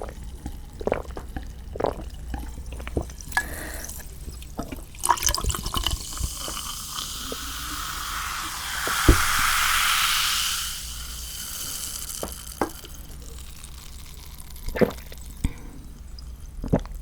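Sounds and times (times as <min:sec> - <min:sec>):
wet eating sounds: 0:00.0 - 0:07.5, 0:12.2 - 0:17.0
steady liquid hiss: 0:01.9 - 0:15.4.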